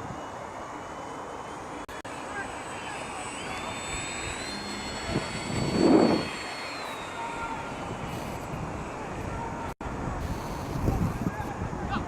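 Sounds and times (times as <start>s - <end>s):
electric aircraft motors whining: 0.2s - 11.5s
rushing swell: 2.1s - 9.6s.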